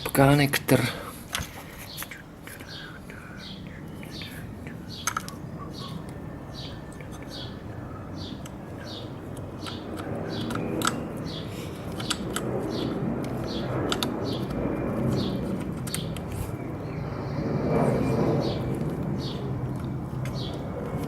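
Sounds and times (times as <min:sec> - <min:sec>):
low murmur: 0:00.0 - 0:21.0
sharp clicks: 0:01.3 - 0:05.4, 0:08.3 - 0:16.5
small bird chirping: 0:01.8 - 0:19.5, 0:20.3 - 0:20.7.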